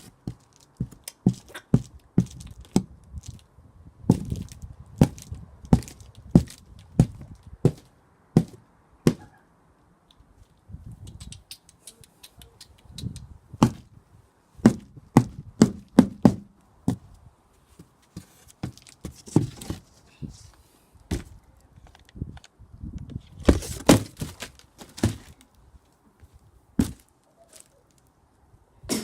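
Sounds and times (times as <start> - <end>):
pole whacking cardboard box: 14.6 - 17.1, 21.1 - 21.4, 23.4 - 25.4.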